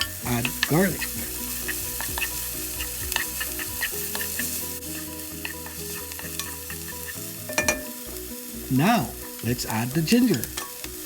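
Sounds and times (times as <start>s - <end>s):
utensil scraping a pan: 0.0s - 8.0s
onions sizzling in oil: 0.0s - 11.0s.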